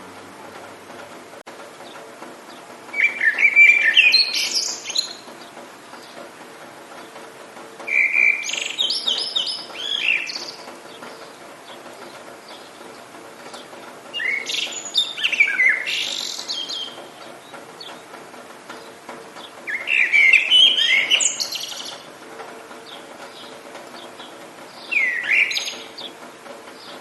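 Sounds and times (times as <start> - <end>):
steady low hiss: 0.0 - 27.0
songbird whistling: 2.9 - 5.3, 7.9 - 10.6, 14.1 - 17.0, 19.6 - 22.0, 24.8 - 26.0.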